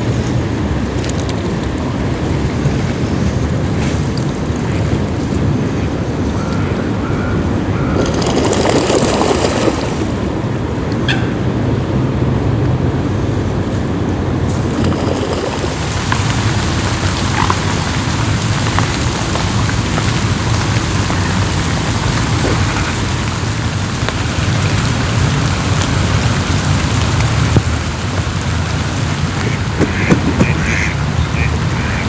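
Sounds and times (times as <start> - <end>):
rain falling on water: 0.0 - 32.0.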